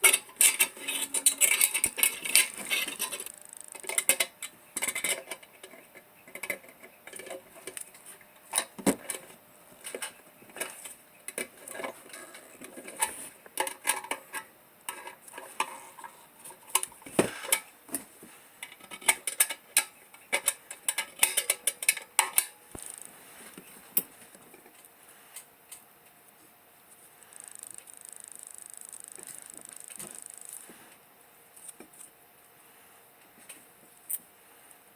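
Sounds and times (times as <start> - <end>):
metal parts clinking: 0.0 - 5.8
steady hiss: 22.7 - 31.6.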